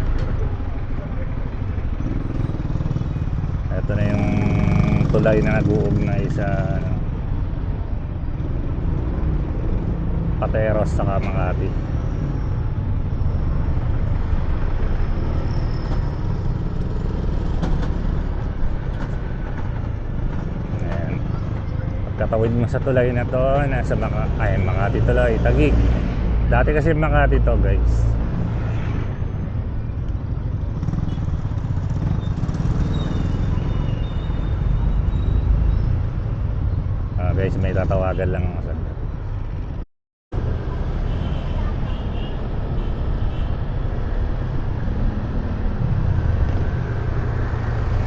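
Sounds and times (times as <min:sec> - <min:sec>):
motorcycle engine: 0:00.0 - 0:07.0, 0:30.4 - 0:33.9
road noise: 0:00.0 - 0:48.0
traffic noise: 0:00.0 - 0:48.0.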